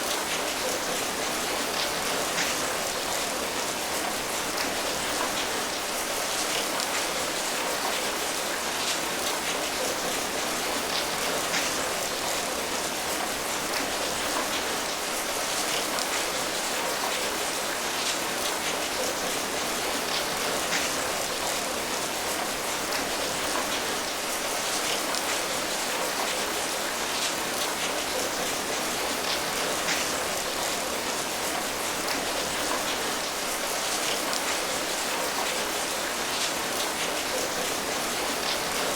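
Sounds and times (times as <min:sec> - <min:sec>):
steady rain patter: 0:00.0 - 0:38.9.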